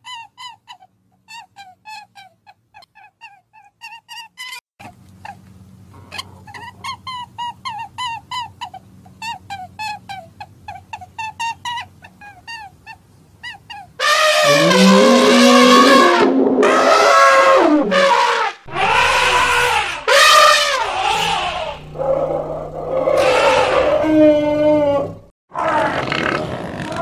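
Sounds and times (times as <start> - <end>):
elephants trumpeting: 14.0 - 26.4
short high squeaks: 14.3 - 18.2.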